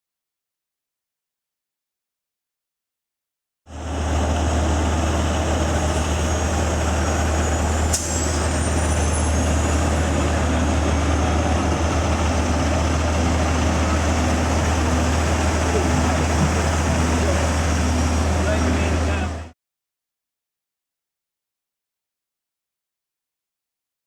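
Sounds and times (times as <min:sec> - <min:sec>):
truck engine droning: 0:03.7 - 0:19.5.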